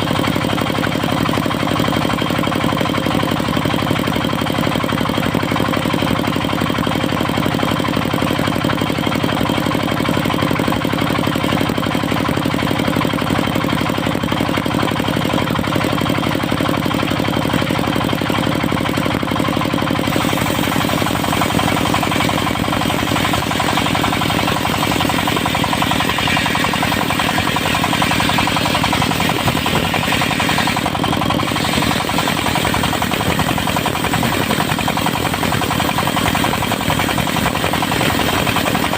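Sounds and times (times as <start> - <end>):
diesel engine knocking: 0.0 - 38.9
saw blade cutting log: 20.0 - 38.9.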